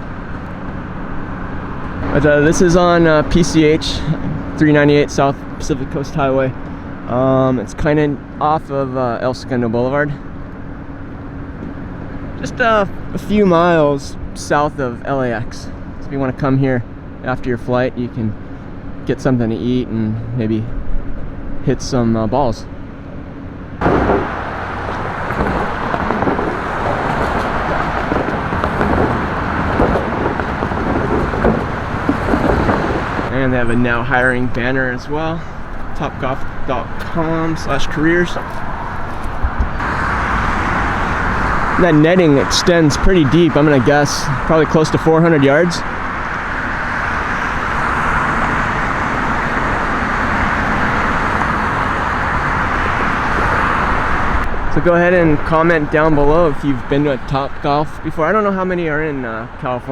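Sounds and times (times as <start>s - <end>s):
tyres and engines hissing: 0.0s - 8.9s, 22.7s - 59.3s
highway traffic noise: 0.0s - 59.9s.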